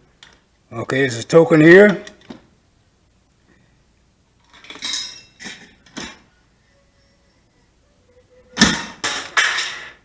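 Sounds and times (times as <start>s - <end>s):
coin clinking through coin mechanism: 4.5s - 6.2s.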